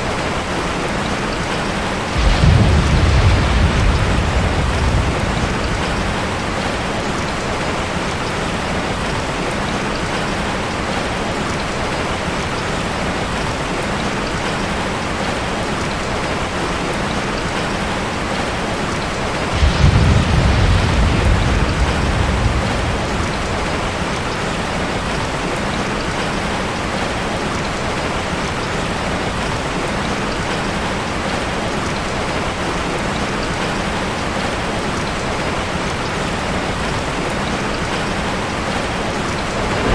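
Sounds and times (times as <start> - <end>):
ocean waves washing: 1.8 - 10.2, 18.8 - 26.8, 37.5 - 39.9
deep rumble of wave breaking: 2.1 - 8.4, 19.4 - 25.8, 39.4 - 39.9.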